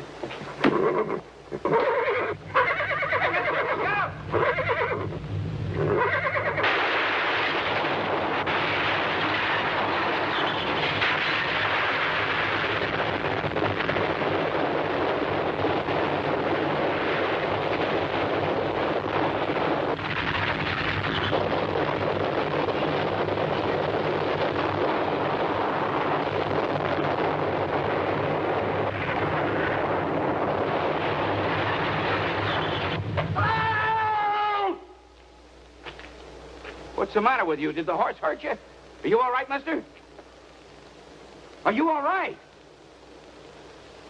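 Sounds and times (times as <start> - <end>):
earthquake rumble: 3.6 - 34.6
low hum: 3.6 - 39.0.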